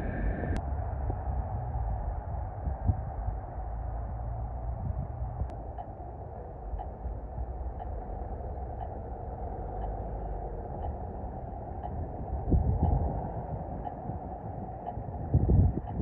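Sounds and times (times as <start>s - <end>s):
low city traffic: 0.0s - 16.0s
wind rumbling on microphone: 0.0s - 16.0s
faint tick: 8.8s - 9.0s, 11.8s - 12.1s.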